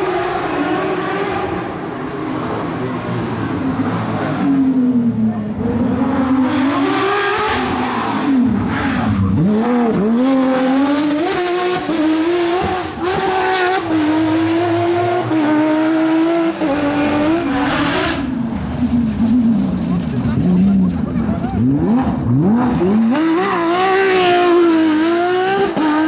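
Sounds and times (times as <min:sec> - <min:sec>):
car engine revving hard: 0:05.6 - 0:18.4, 0:21.4 - 0:26.0.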